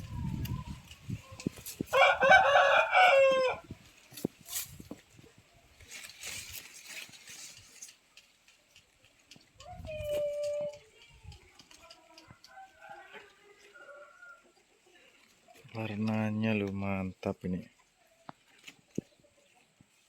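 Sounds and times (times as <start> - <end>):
rooster crowing: 1.9 - 3.7.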